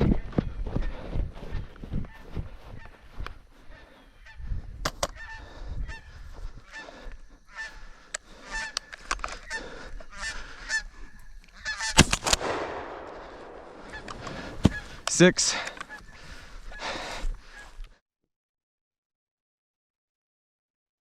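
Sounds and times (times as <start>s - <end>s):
geese honking: 1.5s - 12.0s, 12.8s - 17.8s
shotgun blast echoing: 12.0s - 14.8s.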